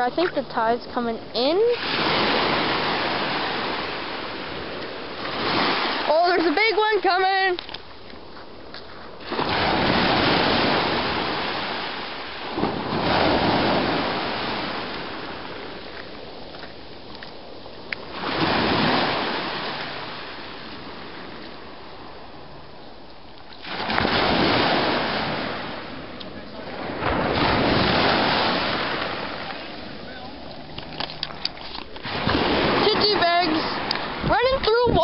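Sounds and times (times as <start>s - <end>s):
ocean waves breaking on beach: 0.0s - 35.0s.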